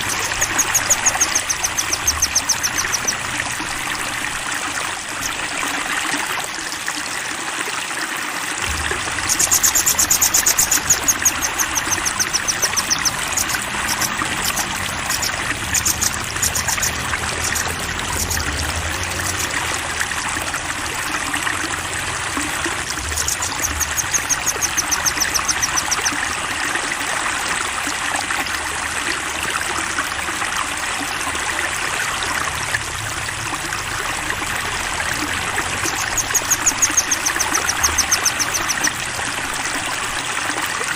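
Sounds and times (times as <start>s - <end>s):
songbird singing: 0.0s - 4.4s, 8.7s - 19.6s, 22.9s - 26.2s, 35.6s - 39.0s
flowing water rushing: 0.0s - 40.9s.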